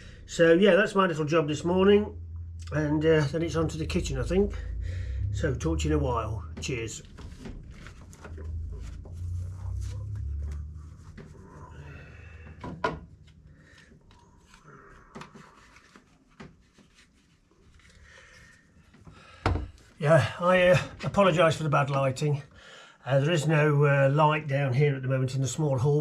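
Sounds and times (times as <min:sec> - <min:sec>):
low rumble: 0:00.0 - 0:15.1.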